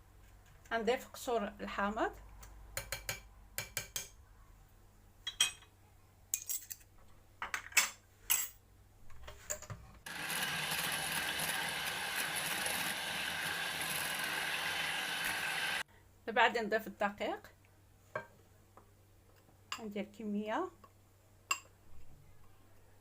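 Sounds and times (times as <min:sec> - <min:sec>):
electric hand mixer running: 0:10.1 - 0:15.8.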